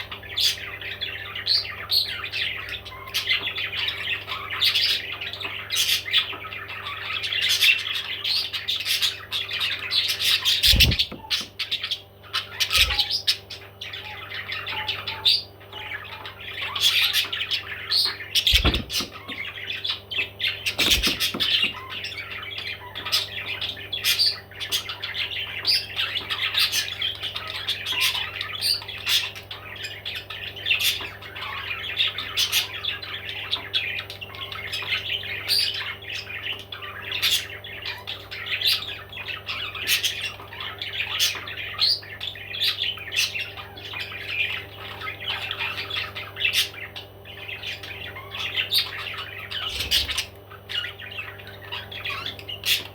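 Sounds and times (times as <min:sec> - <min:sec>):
parrots chattering and squawking: 0:00.0 - 0:52.9
steady low hum: 0:10.3 - 0:11.8
short thumps: 0:10.6 - 0:11.4, 0:18.5 - 0:19.2.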